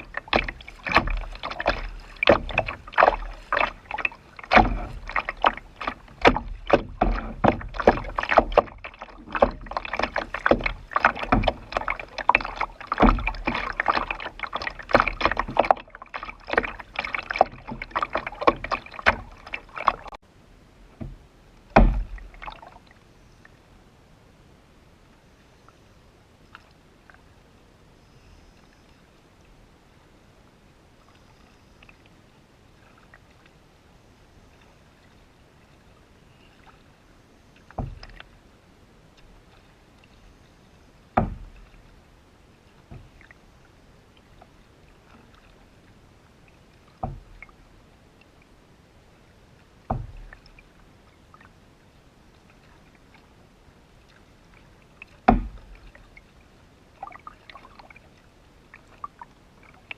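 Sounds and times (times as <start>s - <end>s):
knocks on canoe hull: 0.0s - 15.8s, 21.0s - 21.2s, 21.8s - 22.3s, 37.8s - 38.2s, 41.2s - 41.7s, 47.0s - 47.3s, 49.9s - 50.3s, 55.2s - 55.8s.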